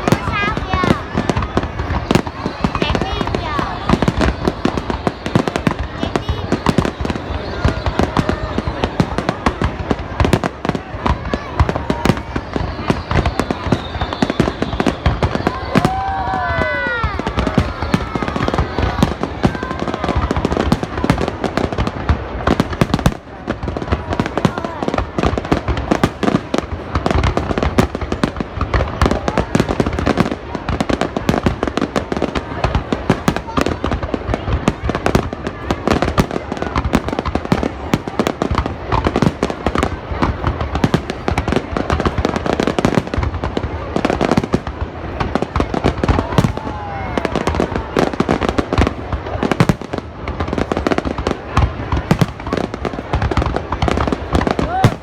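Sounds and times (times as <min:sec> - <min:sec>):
fireworks bangs and crackle: 0:00.0 - 0:55.0
faint falling firework whistle: 0:01.3 - 0:09.6, 0:11.6 - 0:20.3.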